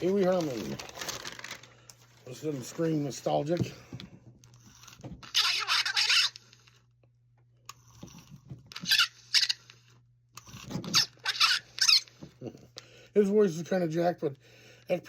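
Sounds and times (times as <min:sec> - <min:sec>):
toy doll squeaky voice: 0:05.2 - 0:06.4, 0:08.8 - 0:09.6, 0:10.9 - 0:12.1.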